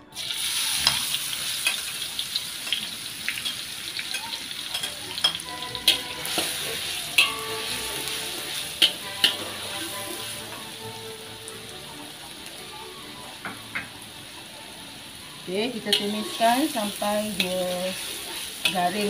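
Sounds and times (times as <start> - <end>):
garlic and onion sizzling: 0.0 - 19.0
metal turner scraping a wok: 4.8 - 10.1.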